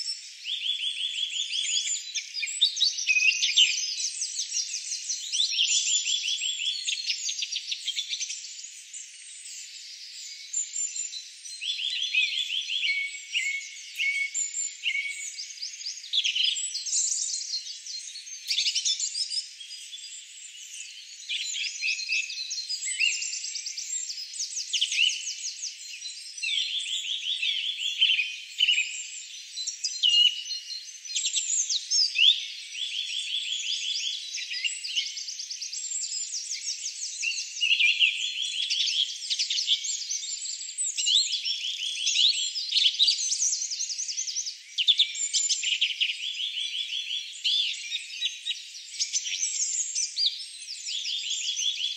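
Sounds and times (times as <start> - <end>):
songbirds singing: 0.0 - 51.9.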